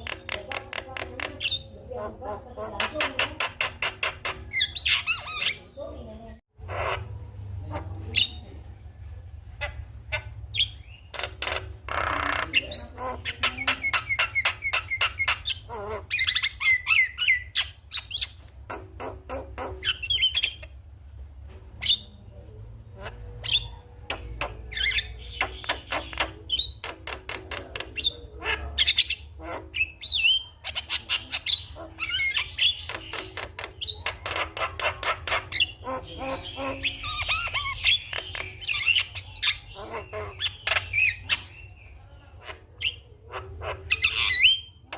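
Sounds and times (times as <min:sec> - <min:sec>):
bird clicks and chattering: 0:00.0 - 0:01.6, 0:02.7 - 0:05.5, 0:11.1 - 0:20.7, 0:24.0 - 0:28.2, 0:28.8 - 0:41.4.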